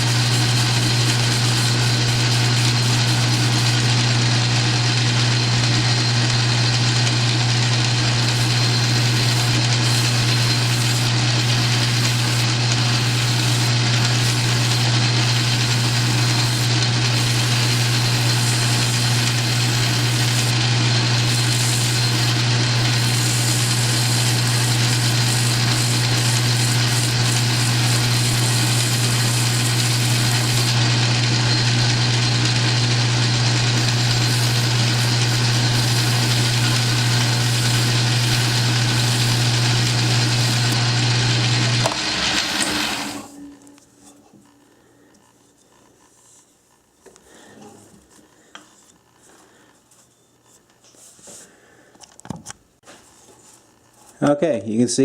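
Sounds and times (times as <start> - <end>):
metal lathe humming: 0.0 - 43.8.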